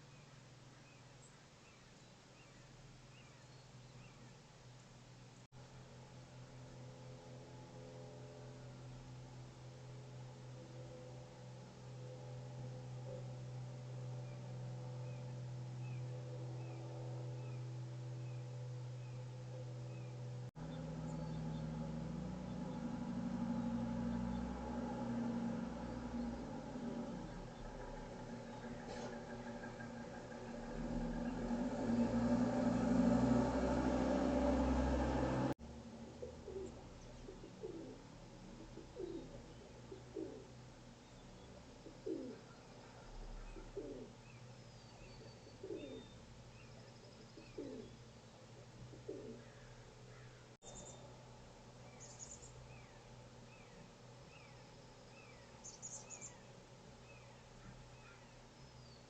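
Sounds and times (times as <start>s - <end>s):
faint small birds chirping: 0.0s - 5.5s, 13.0s - 32.2s, 36.1s - 59.0s
low engine-like hum: 2.4s - 59.0s
pigeon cooing: 36.2s - 40.5s, 41.8s - 42.6s, 43.4s - 44.2s, 45.6s - 46.1s, 47.4s - 48.0s, 49.0s - 49.5s.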